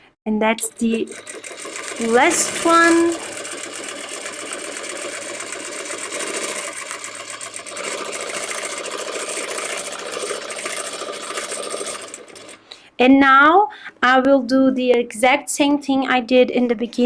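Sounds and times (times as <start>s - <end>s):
sewing machine stitching rapidly: 0.6s - 12.7s.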